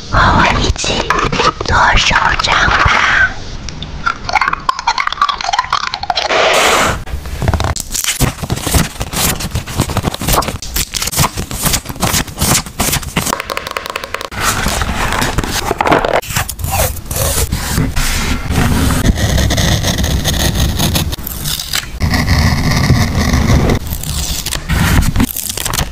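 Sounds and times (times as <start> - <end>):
paper crinkling and tapping: 7.4 - 16.2.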